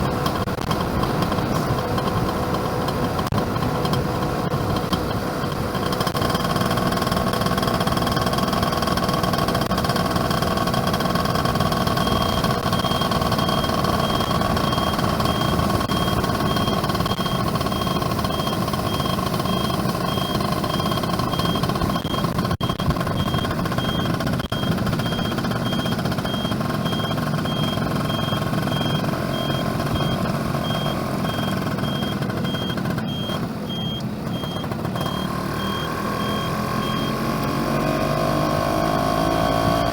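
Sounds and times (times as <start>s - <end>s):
road noise: 0.0s - 39.9s
two-stroke engine running: 0.0s - 39.9s
high-pitched beep: 11.4s - 38.3s, 38.9s - 39.9s.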